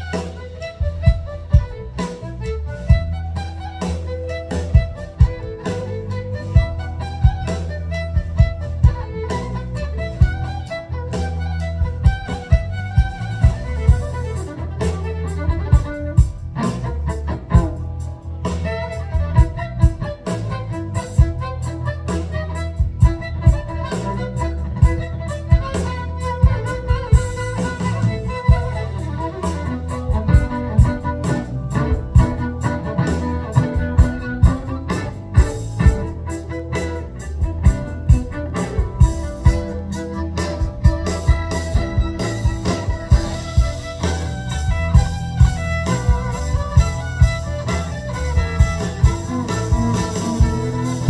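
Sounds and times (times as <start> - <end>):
bass: 0.0 - 51.0
drum kit beat: 0.0 - 51.0
fiddle melody: 0.0 - 51.0
guitar: 0.0 - 51.0.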